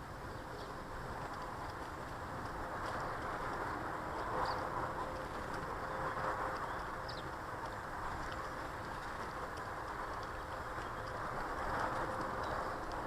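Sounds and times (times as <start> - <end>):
outdoor background noise: 0.0 - 13.0
small birds chirping: 4.1 - 4.7, 6.5 - 7.4, 10.2 - 11.2.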